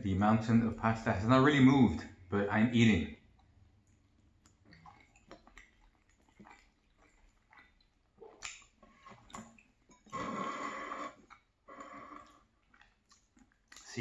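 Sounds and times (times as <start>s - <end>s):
faint chewing of soft pasta: 3.2s - 14.0s
mouth clicks and smacks: 3.2s - 14.0s.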